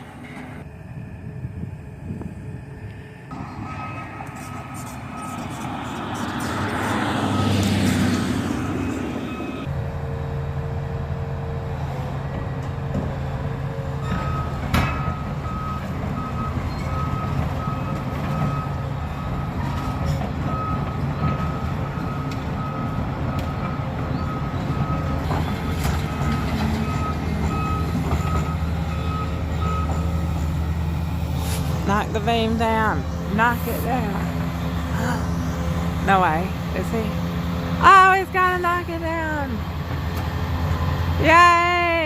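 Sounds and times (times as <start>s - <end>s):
excavator diesel engine running: 0.0s - 42.0s
reversing alarm beeping: 0.3s - 9.7s, 14.0s - 31.0s.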